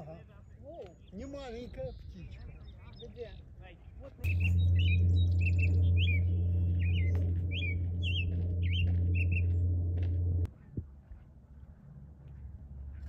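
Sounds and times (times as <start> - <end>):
songbird chirping phrases: 0.2 - 9.5
loud steady low hum: 4.2 - 10.5.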